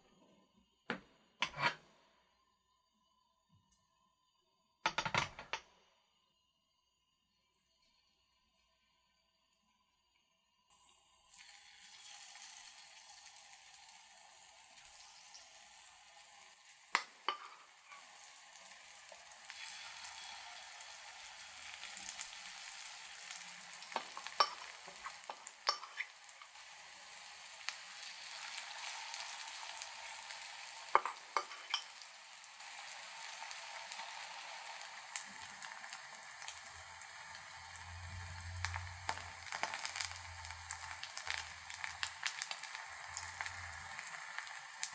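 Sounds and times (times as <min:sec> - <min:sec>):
food sizzling in hot oil: 0:04.9 - 0:05.5, 0:10.7 - 0:44.9.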